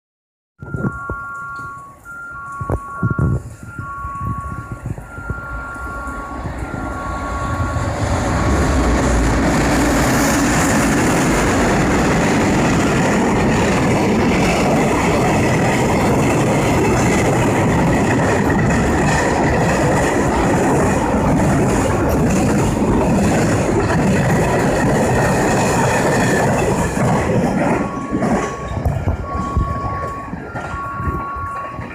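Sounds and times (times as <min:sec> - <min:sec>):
two-tone electronic beeping: 0:00.6 - 0:08.5, 0:27.5 - 0:31.9
freight train wheels rumbling on rails: 0:02.7 - 0:31.9.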